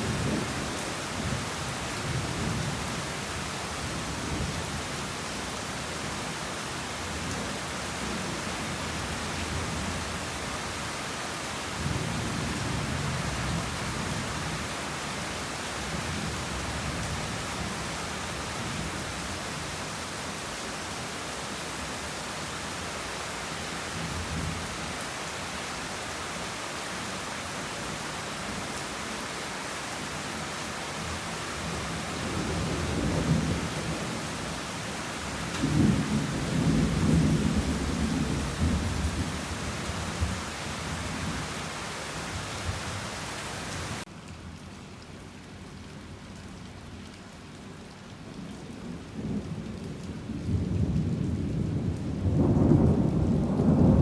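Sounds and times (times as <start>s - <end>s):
heavy rain hissing: 19.3s - 44.1s
thunder rumbling: 35.4s - 41.5s, 50.5s - 54.0s.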